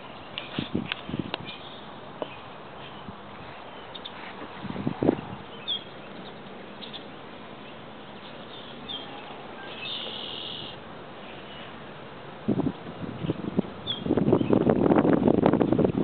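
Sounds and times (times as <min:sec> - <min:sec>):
birds chirping: 0:00.0 - 0:11.9, 0:13.2 - 0:14.7
steady outdoor hiss: 0:00.0 - 0:16.0.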